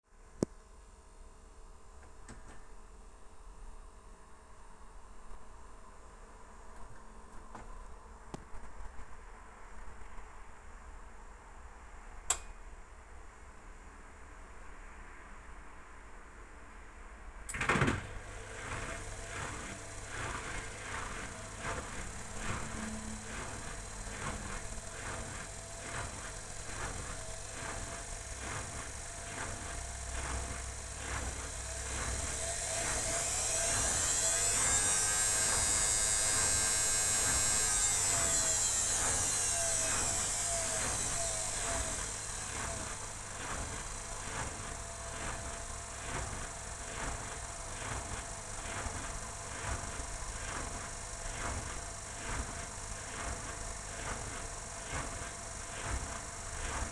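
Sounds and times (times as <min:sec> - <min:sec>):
washing machine drum swishing laundry: 0:17.5 - 0:35.0, 0:40.5 - 0:56.9
washing machine water rush: 0:17.5 - 0:56.9.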